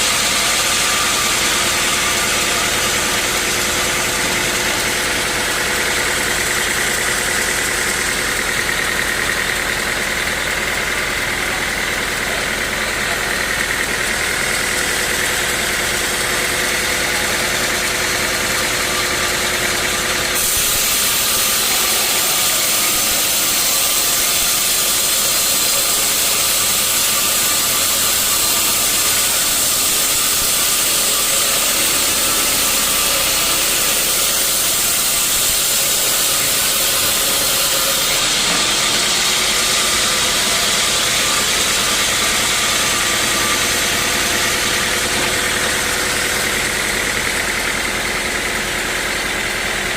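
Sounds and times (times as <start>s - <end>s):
engine running: 0.0s - 49.9s
sawmill machinery running: 0.0s - 49.9s.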